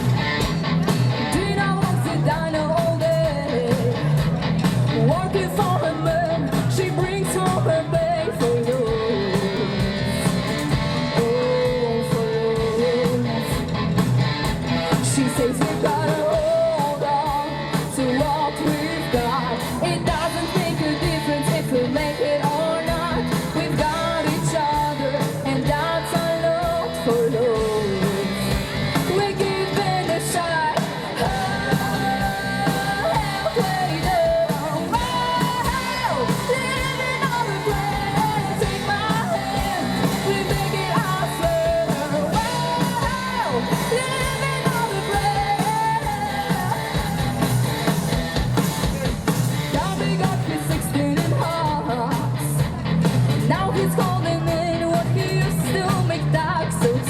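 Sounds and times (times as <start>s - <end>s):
electric guitar: 0.0s - 57.0s
live rock band playing: 0.0s - 57.0s
person singing: 1.1s - 13.7s, 14.8s - 48.0s, 48.9s - 52.8s, 53.4s - 57.0s.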